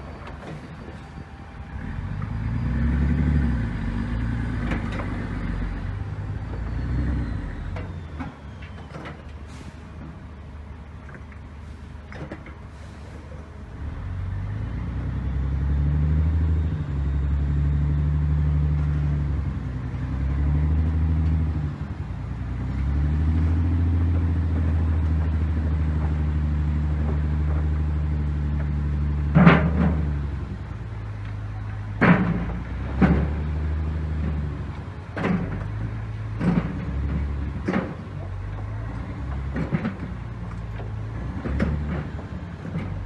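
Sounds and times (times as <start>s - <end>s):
diesel engine working under load: 0.0s - 43.0s.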